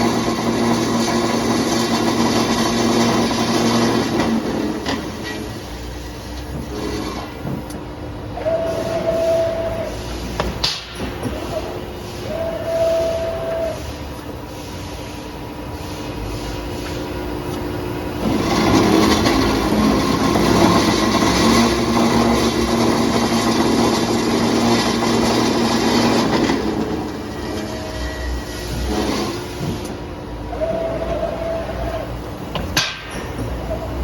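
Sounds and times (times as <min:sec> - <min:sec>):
cold saw machine hum: 0:00.0 - 0:07.4, 0:17.1 - 0:32.5
short machine whine: 0:08.3 - 0:10.3, 0:11.3 - 0:14.1, 0:18.2 - 0:29.8, 0:30.4 - 0:32.2.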